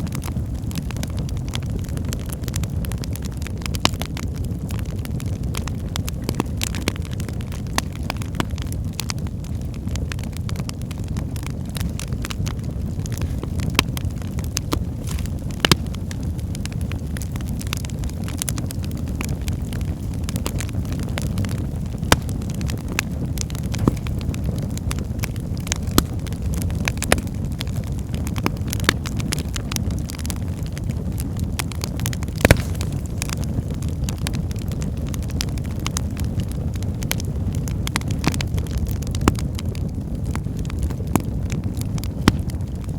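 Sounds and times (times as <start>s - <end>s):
fire crackling and popping: 0.0s - 42.9s.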